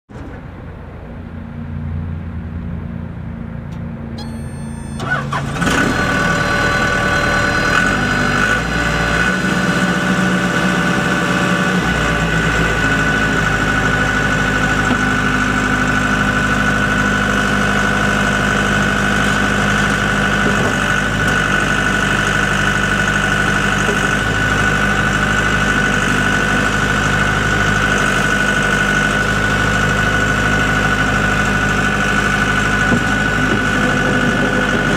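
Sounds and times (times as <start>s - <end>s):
diesel engine starting and running: 0.1s - 34.9s
high whine: 1.1s - 7.8s.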